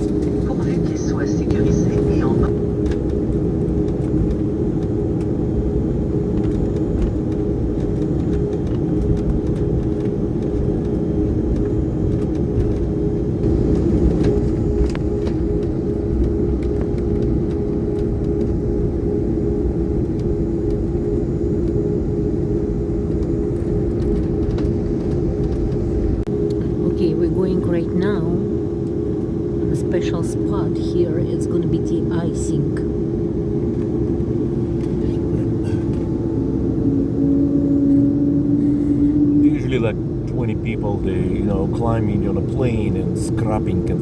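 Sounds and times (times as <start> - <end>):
jet cabin rumble and hum: 0.0 - 44.0.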